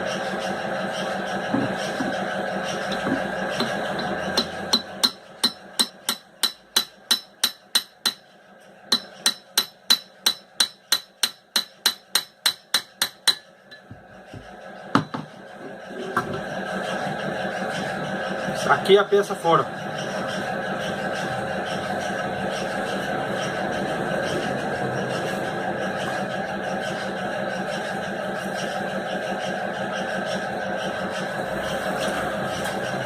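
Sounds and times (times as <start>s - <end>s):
hammer knocking on metal motor: 1.5s - 8.3s, 8.9s - 15.4s.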